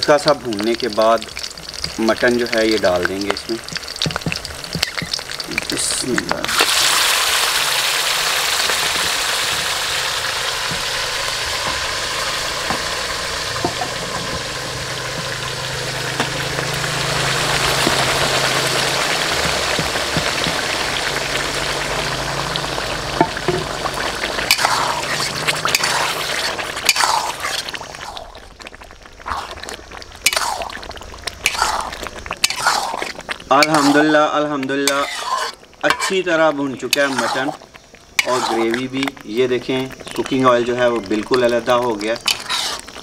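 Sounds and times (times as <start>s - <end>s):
meat sizzling in hot oil: 0.0s - 43.0s
metal spatula scraping pan: 24.4s - 27.7s, 30.2s - 30.7s, 31.4s - 37.6s, 38.2s - 39.0s, 42.2s - 43.0s.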